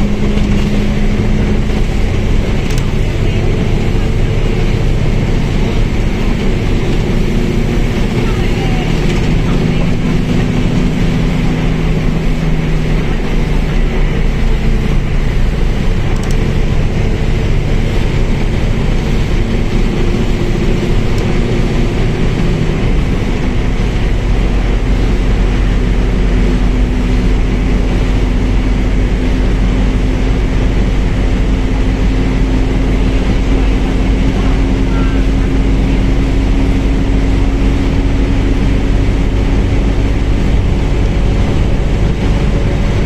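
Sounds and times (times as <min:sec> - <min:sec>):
bus diesel engine running: 0:00.0 - 0:43.0
road noise: 0:00.0 - 0:43.0.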